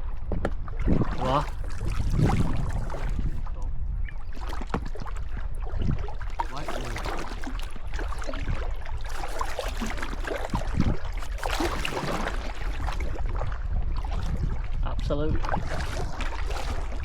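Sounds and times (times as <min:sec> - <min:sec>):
steady low rumble: 0:00.0 - 0:04.3
water splashing against boat: 0:00.0 - 0:17.0.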